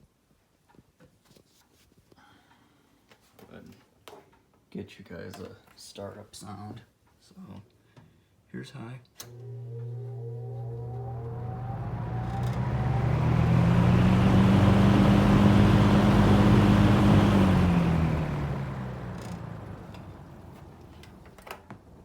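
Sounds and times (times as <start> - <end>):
fan motor hum and whine: 9.3 - 21.5.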